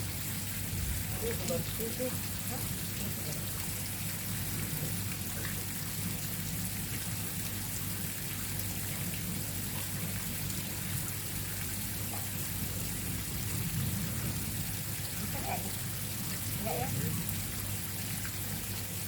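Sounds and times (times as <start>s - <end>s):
falling water hissing: 8.8s - 19.0s.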